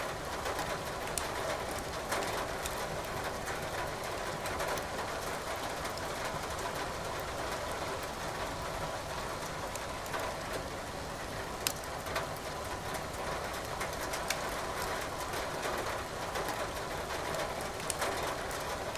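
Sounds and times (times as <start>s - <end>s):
firewood crackling in fireplace: 1.0s - 1.4s, 11.6s - 12.5s, 14.1s - 14.8s, 17.6s - 18.1s.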